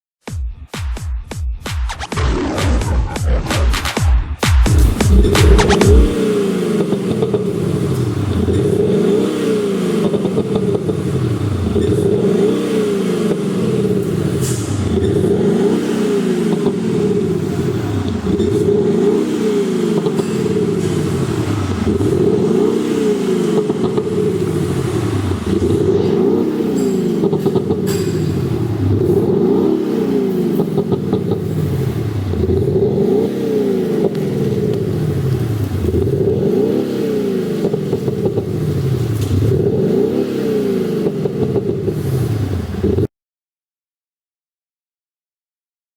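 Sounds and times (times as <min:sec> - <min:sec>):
synthesized exhaust note revving: 0:02.0 - 0:34.5.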